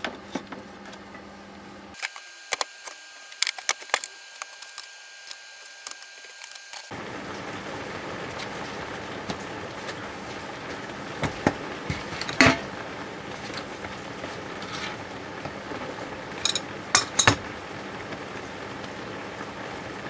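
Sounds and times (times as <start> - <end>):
metal tools clinking and knocking: 16.4 - 17.4.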